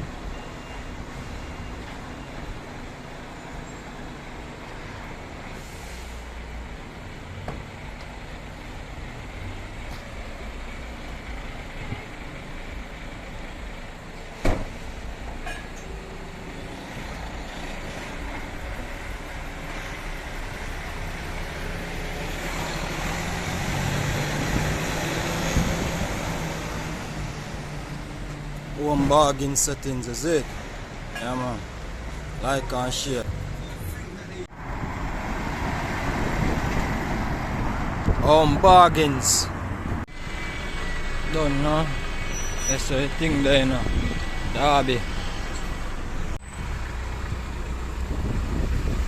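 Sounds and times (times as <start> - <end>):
street traffic: 0.0 - 49.0
lorry engine approaching: 6.4 - 28.8.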